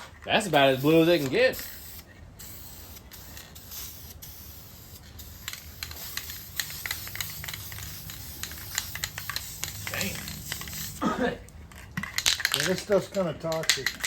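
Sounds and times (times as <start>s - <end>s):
spray paint can hissing: 0.4s - 11.0s.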